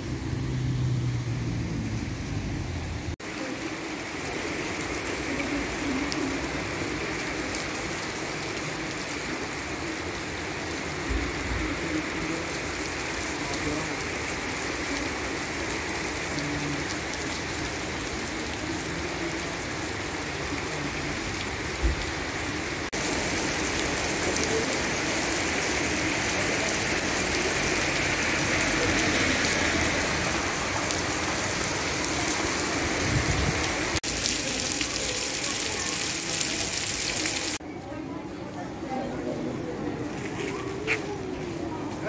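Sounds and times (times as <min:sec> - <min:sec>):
heavy rain on paved street: 0:00.0 - 0:42.0
running water: 0:22.9 - 0:37.6.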